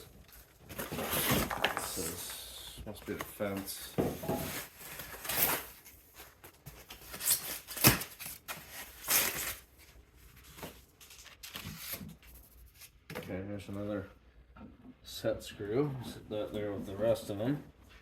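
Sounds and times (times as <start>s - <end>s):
packaging rustling: 0.1s - 2.4s, 4.4s - 12.8s.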